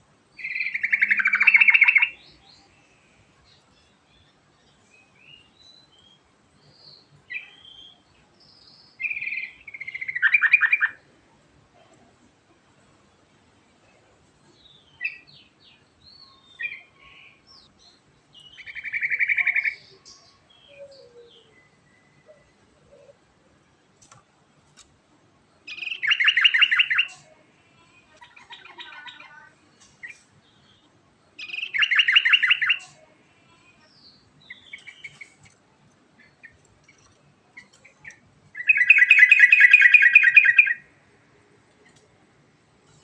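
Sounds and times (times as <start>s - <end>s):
soft scattered bird notes: 0.0s - 43.0s
bird singing rattling trills: 0.4s - 2.4s, 25.7s - 27.1s, 31.4s - 32.8s, 34.0s - 35.5s, 36.2s - 40.8s.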